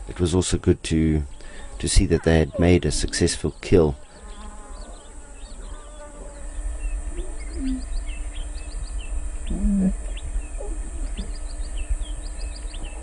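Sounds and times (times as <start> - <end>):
birds chirping: 0.4 - 13.0
low bird call: 4.3 - 13.0
steady low rumble: 6.5 - 13.0.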